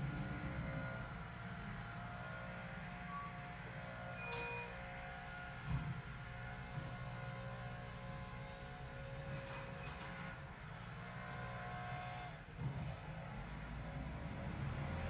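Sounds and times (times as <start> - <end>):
thump: 5.6 - 6.0.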